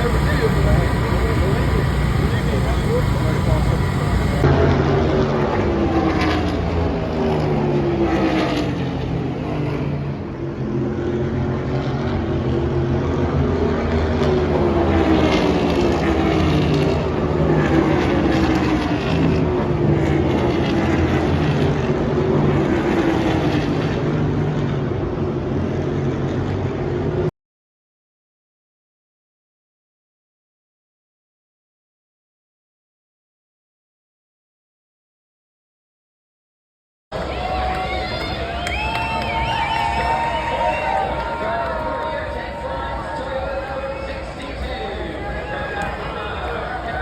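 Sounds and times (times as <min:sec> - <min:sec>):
race cars passing at speed: 0:00.0 - 0:27.2.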